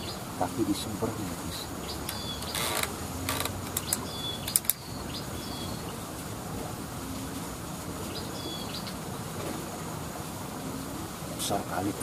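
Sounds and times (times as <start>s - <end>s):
outdoor background hiss: 0.0s - 12.0s
high whistled bird calls: 1.8s - 2.8s, 3.8s - 6.0s, 8.0s - 9.0s
sharp clicks: 2.0s - 4.8s.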